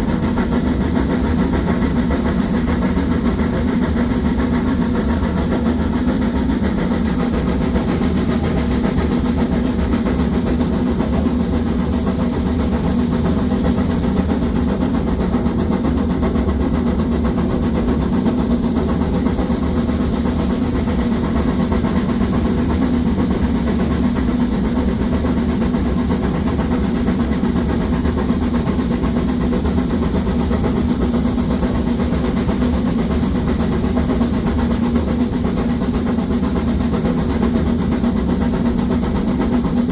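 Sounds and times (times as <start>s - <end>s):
steam locomotive exhaust beats: 0.0s - 39.9s.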